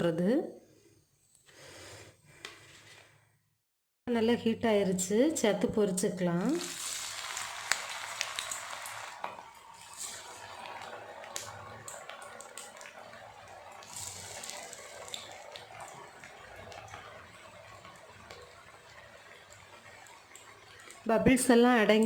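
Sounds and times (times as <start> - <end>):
oil sizzling and bubbling: 5.3 - 22.0
crackles and pops: 6.6 - 21.0.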